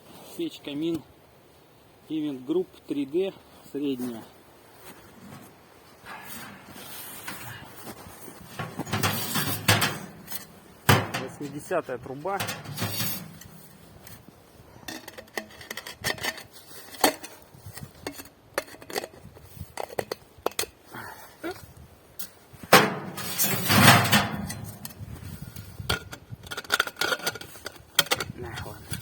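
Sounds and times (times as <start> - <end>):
metal scraping and rustling: 4.9 - 20.2, 22.2 - 29.0
metal clinks and knocks: 8.3 - 11.7, 12.3 - 14.2, 22.8 - 25.0.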